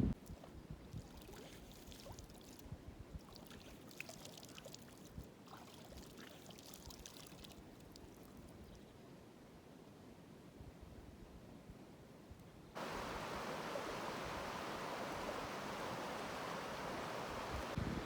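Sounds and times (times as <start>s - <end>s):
faint trickling water: 0.1s - 9.0s, 12.8s - 17.8s
water drips and splashes: 0.2s - 8.5s, 12.8s - 17.8s.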